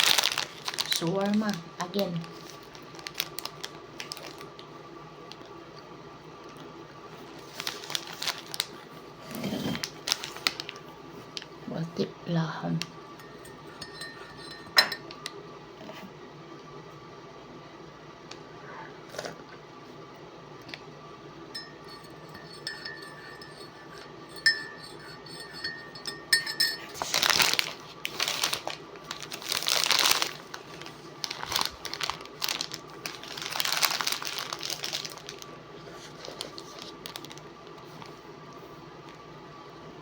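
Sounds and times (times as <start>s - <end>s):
food wrapper crinkling: 0.0s - 4.7s, 7.3s - 9.0s, 9.7s - 11.6s, 26.9s - 38.1s
faint steady hum: 0.0s - 40.0s.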